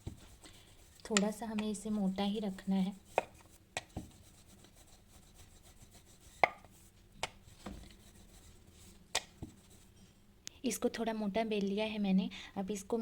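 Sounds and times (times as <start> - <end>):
rolling pin rubbing on dough: 0.0 - 10.1
rolling pin knocking on board: 6.4 - 6.7.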